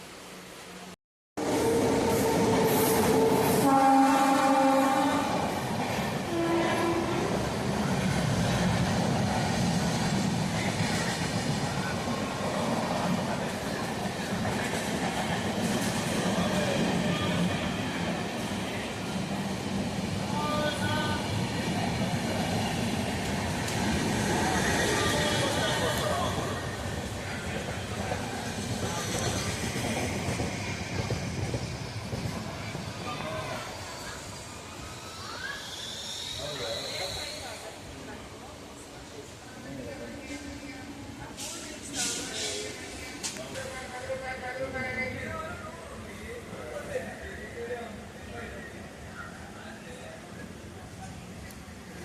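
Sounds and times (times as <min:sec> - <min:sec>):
train rumbling on rails: 0:00.2 - 0:37.8
train horn: 0:01.4 - 0:05.4, 0:06.3 - 0:07.4.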